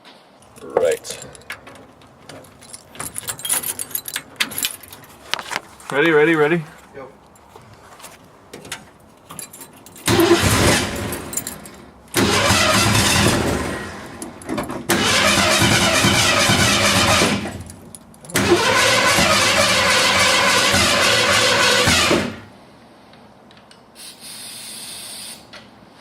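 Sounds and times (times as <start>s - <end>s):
engine cranked by starter: 0.4s - 6.6s, 10.0s - 22.5s.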